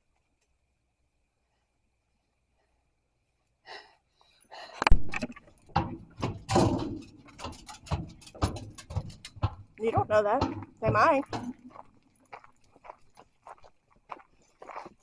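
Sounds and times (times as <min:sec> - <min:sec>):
knocks and thumps: 0:04.8 - 0:11.9.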